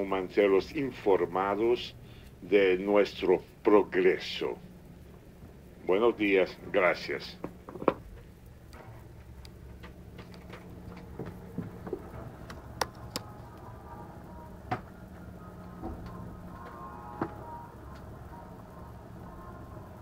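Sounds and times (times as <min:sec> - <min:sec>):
low cabin hum: 0:00.0 - 0:20.0.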